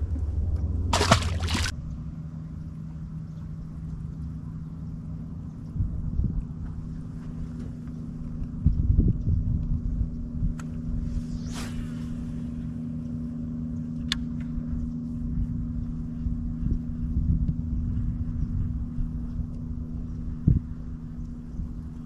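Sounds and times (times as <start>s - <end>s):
boat motor humming: 0.0s - 1.7s
brief swish: 11.1s - 12.6s.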